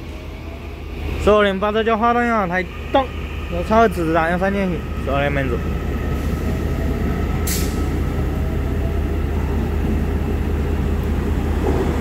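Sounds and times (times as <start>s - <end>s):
train wheels rumbling: 0.0s - 12.0s
air hiss: 7.4s - 7.9s.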